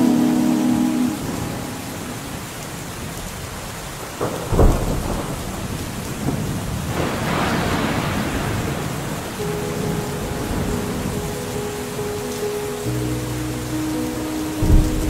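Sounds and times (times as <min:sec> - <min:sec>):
steady rain falling: 0:00.0 - 0:15.0
thunderclap with deep boom: 0:04.2 - 0:09.3
rolling rumble of thunder: 0:04.2 - 0:11.6, 0:14.5 - 0:15.0.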